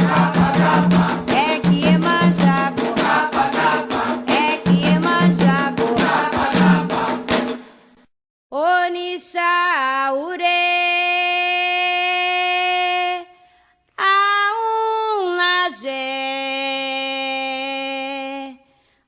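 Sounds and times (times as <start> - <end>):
person singing unaccompanied: 0.0 - 7.4.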